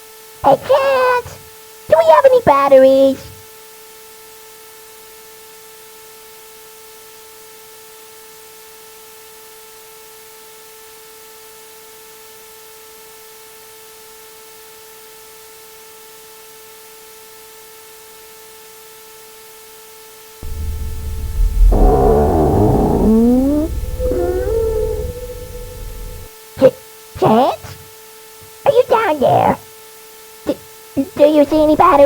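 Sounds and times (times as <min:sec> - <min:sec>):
constant hiss: 0:20.4 - 0:26.3, 0:30.5 - 0:32.0
deep rumbling: 0:20.4 - 0:26.3, 0:31.5 - 0:32.0
steady hum on single pitch: 0:20.4 - 0:26.3.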